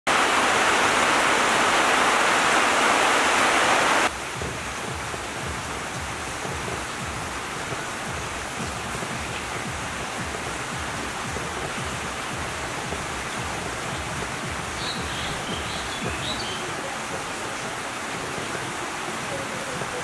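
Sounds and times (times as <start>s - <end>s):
rain falling: 0.1s - 20.0s
low drip taps: 4.1s - 18.8s.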